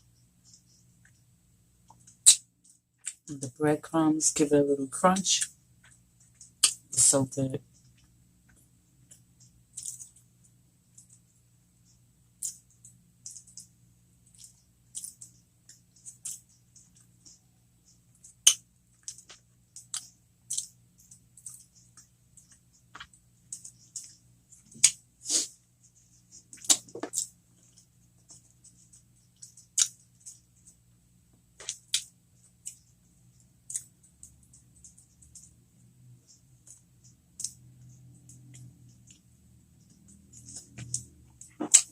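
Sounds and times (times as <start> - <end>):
crunchy chewing: 7.7 - 30.8, 31.6 - 35.6, 36.2 - 41.9.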